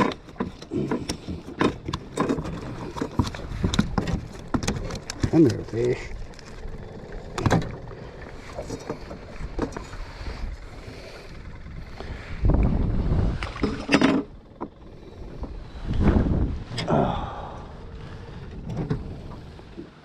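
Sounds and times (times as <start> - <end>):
handling clicks and knocks: 0.0 - 5.7
low rumble: 0.6 - 20.0.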